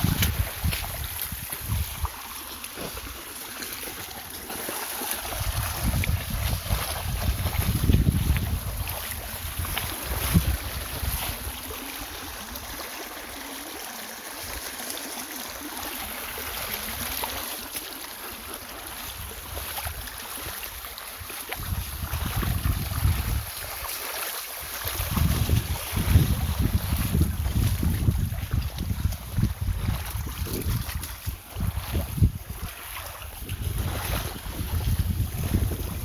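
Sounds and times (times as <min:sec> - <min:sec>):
wind buffeting microphone: 0:00.0 - 0:02.2, 0:05.2 - 0:12.8, 0:21.6 - 0:23.7, 0:24.8 - 0:36.0
river water rushing: 0:00.0 - 0:08.0.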